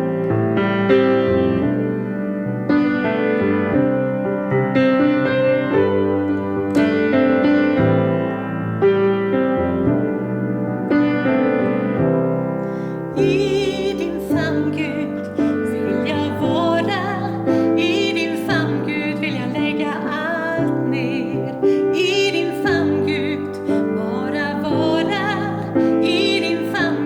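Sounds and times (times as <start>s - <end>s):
piano accompaniment: 0.0s - 27.0s
woman singing with vibrato: 13.1s - 27.0s.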